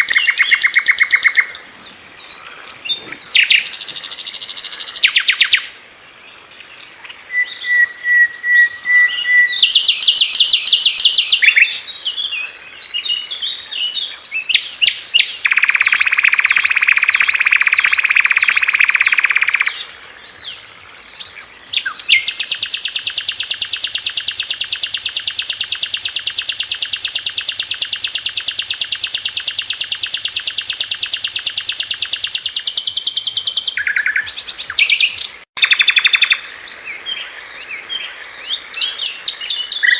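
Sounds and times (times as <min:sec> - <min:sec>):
buzzy warbling bird trill: 0:00.0 - 0:01.6, 0:09.5 - 0:11.8, 0:15.1 - 0:19.8, 0:22.1 - 0:36.4
rapid rattling bird trill: 0:00.0 - 0:01.6, 0:03.2 - 0:05.8, 0:09.6 - 0:11.9, 0:14.7 - 0:19.8, 0:21.9 - 0:36.5
bird chirping and whistling: 0:00.0 - 0:01.7, 0:03.2 - 0:05.8, 0:07.3 - 0:13.4, 0:14.2 - 0:20.4, 0:21.6 - 0:36.7, 0:38.5 - 0:39.9.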